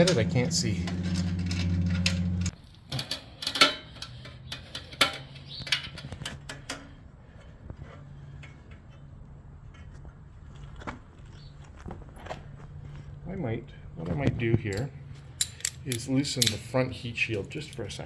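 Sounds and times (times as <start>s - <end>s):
hand tool clicking on metal: 14.7s - 16.7s.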